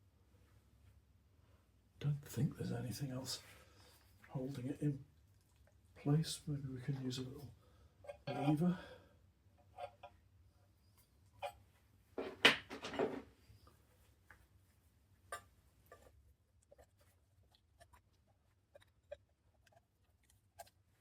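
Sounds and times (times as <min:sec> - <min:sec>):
metal knocking and clinking: 0:12.2 - 0:13.2.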